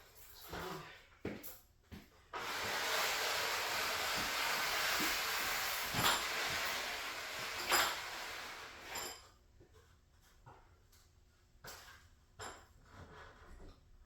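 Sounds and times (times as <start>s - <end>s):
steady hiss: 2.4s - 9.2s.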